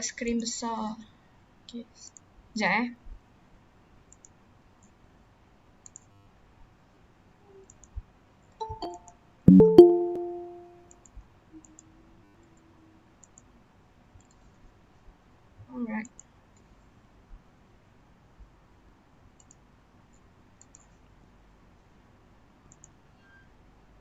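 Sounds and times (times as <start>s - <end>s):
electronic computer chime: 8.6s - 10.8s
mouse clicks: 19.4s - 19.6s, 20.6s - 21.0s, 22.7s - 23.0s.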